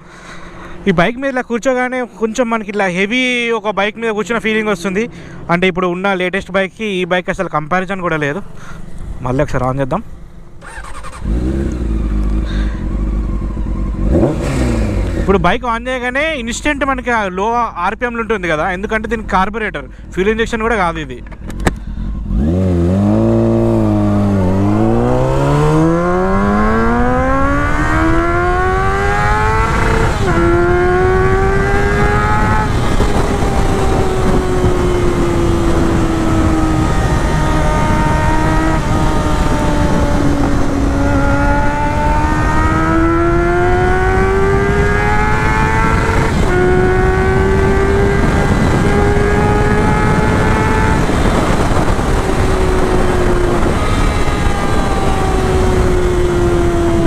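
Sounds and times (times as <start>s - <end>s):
motorcycle engine accelerating hard: 10.1s - 15.4s, 21.4s - 57.0s.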